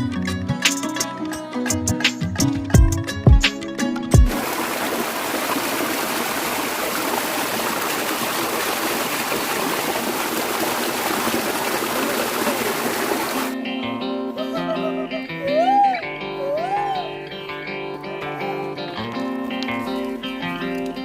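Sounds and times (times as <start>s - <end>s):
plucked string music: 0.0s - 4.4s, 13.5s - 21.0s
waterfall rushing: 4.2s - 13.6s.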